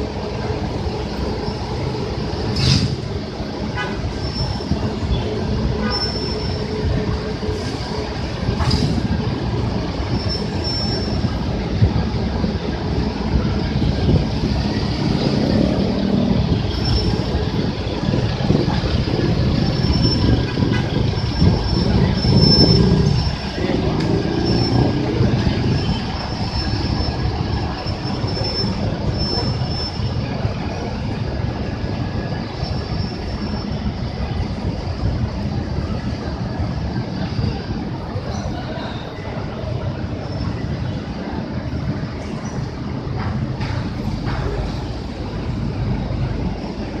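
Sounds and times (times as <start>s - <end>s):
bus engine and road rumble: 0.0s - 47.0s.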